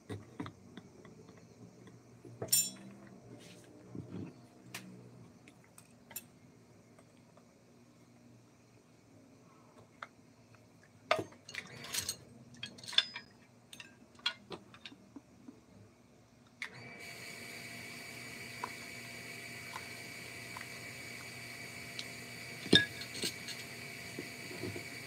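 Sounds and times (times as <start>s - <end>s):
tools clicking and knocking: 11.9s - 15.6s
power tool high whine: 16.7s - 25.0s.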